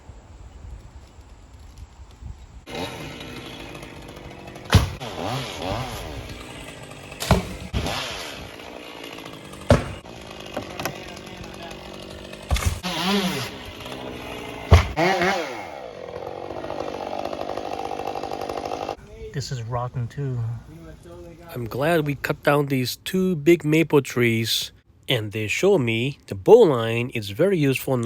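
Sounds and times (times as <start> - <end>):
chainsaw engine: 2.7 - 19.0
sharp knocks: 9.7 - 10.9, 14.7 - 15.4.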